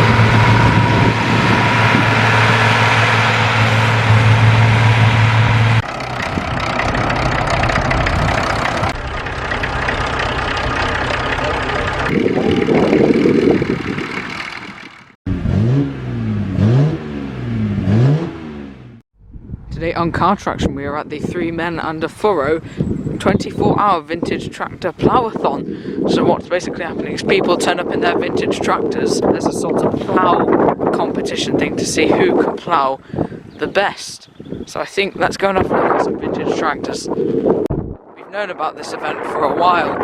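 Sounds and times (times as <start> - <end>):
tractor engine running: 0.0 - 15.2
engine revving: 0.0 - 19.0.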